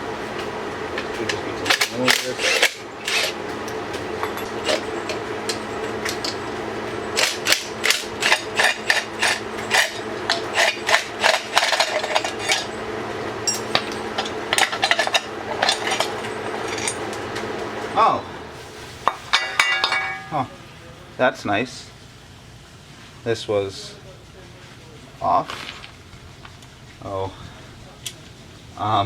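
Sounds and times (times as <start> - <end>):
hand tools knocking on metal cover: 13.5 - 17.2, 19.3 - 20.5.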